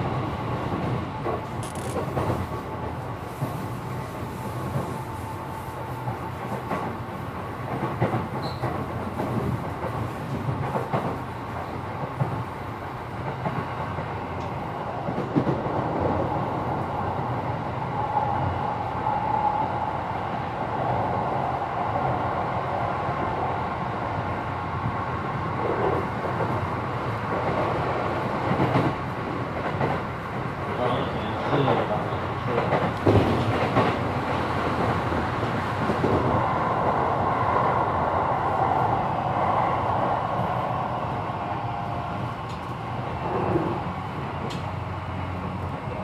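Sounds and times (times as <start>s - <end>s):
train wheels rumbling on rail: 0.0s - 46.0s
rail-joint clicks: 0.7s - 3.6s, 6.0s - 12.4s, 13.2s - 15.7s, 31.5s - 36.1s, 42.4s - 44.8s.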